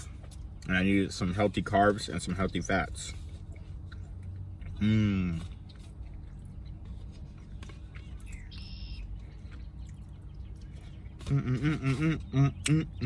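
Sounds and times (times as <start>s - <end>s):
low background rumble: 0.0s - 13.0s
man humming: 4.8s - 5.4s, 11.2s - 13.0s.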